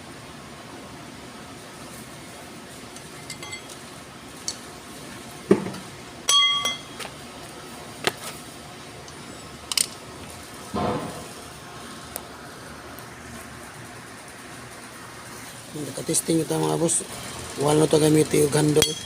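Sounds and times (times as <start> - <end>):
steady background hum: 0.0 - 19.0
metal objects clinking and knocking: 3.0 - 3.8, 5.6 - 7.0, 18.8 - 19.0.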